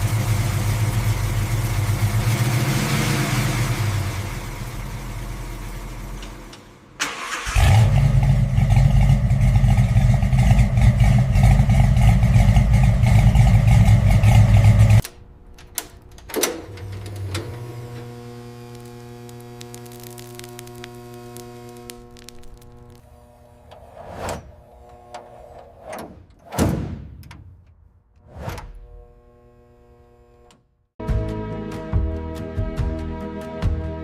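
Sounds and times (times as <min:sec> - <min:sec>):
car engine cranking and starting: 0:00.0 - 0:26.0
steady hum with held tones: 0:17.4 - 0:23.9.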